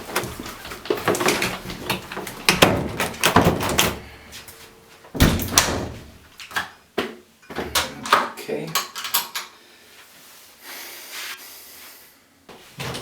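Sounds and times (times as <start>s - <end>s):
door opening and banging shut: 0.9s - 4.2s, 5.1s - 6.2s, 12.8s - 13.0s
knocks and thuds: 1.0s - 4.1s, 5.2s - 6.2s.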